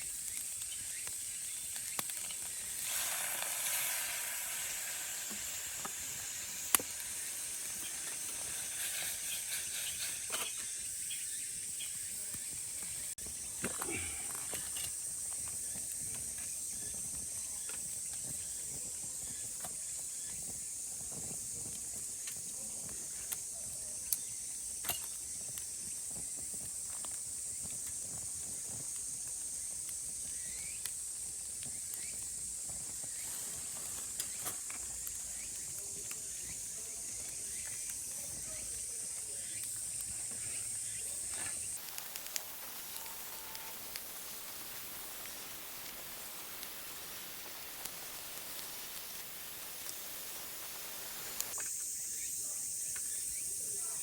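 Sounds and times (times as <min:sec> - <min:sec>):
cicadas droning: 0:00.0 - 0:54.0
light clicks and crackles: 0:00.1 - 0:02.7, 0:13.6 - 0:51.8
faint clicks: 0:41.7 - 0:51.9.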